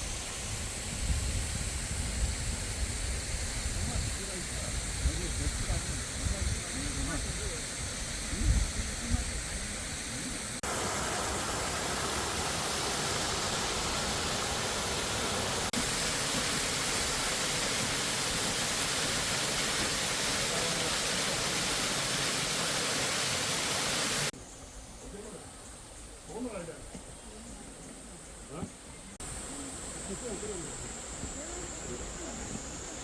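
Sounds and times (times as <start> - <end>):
waterfall rushing: 10.4 - 24.4.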